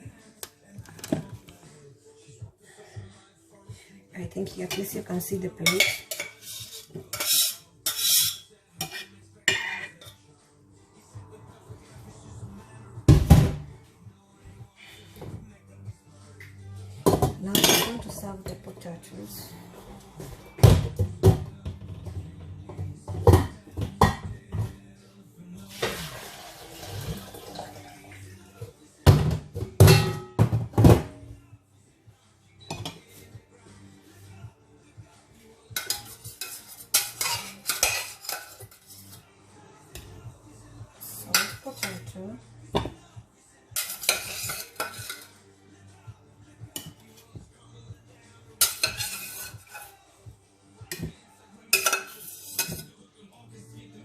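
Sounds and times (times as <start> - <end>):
metal utensils scraping a pot: 4.6 - 10.2, 17.4 - 19.8, 35.8 - 39.2, 41.0 - 42.2, 43.8 - 45.3, 48.6 - 50.0, 51.7 - 52.9
utensils clinking: 4.7 - 10.2, 17.2 - 18.8, 35.8 - 39.2, 41.0 - 42.1, 43.8 - 45.3, 48.6 - 50.0, 51.8 - 52.9
utensil knocking on pot and plate: 29.1 - 31.1.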